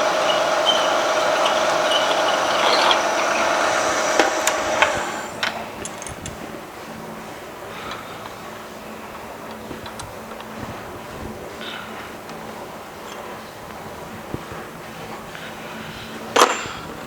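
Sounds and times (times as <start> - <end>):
drill bit boring into steel: 0.0 - 6.1
milling machine spindle whine: 0.0 - 16.3.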